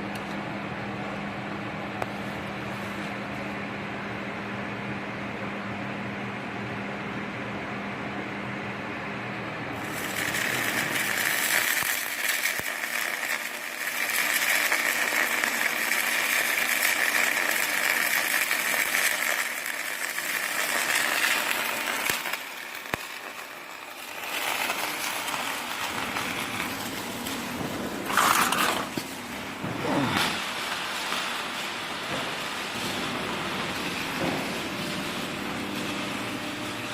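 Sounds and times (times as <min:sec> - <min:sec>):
arc welding crackle and hiss: 0:01.9 - 0:03.7, 0:09.8 - 0:36.9.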